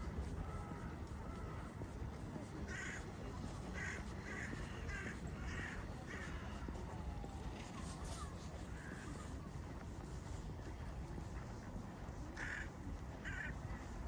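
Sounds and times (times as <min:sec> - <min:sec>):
low hum of city ambience: 0:00.0 - 0:14.0
crows cawing: 0:02.7 - 0:03.0, 0:03.8 - 0:06.4, 0:12.4 - 0:13.5.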